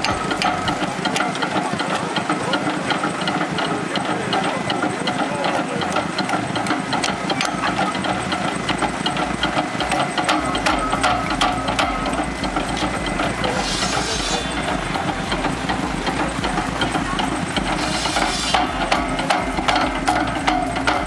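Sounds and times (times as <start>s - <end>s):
machine engine running: 6.0s - 21.0s.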